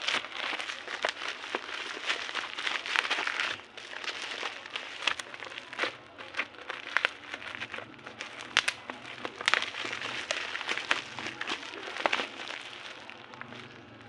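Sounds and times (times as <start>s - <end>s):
packaging crinkling: 0.0s - 14.0s.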